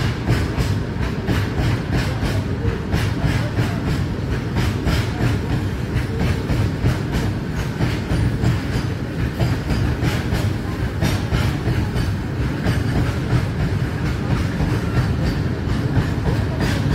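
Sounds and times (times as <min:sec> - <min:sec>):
freight train rumbling past: 0:00.0 - 0:16.9.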